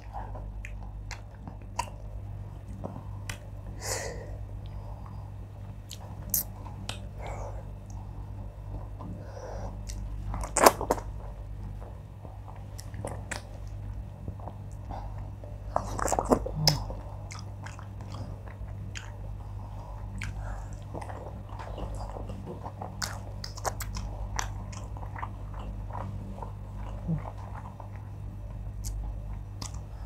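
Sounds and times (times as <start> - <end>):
chewing and wet mouth clicks: 0.0 - 2.0, 12.7 - 13.7, 15.9 - 19.2, 20.1 - 21.2, 21.8 - 28.1, 28.8 - 29.8
steady low hum: 0.0 - 30.0.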